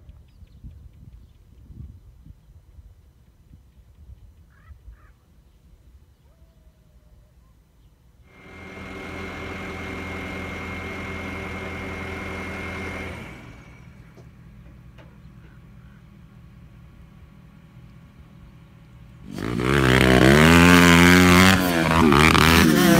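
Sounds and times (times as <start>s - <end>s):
engine running with high whine: 8.3s - 22.9s.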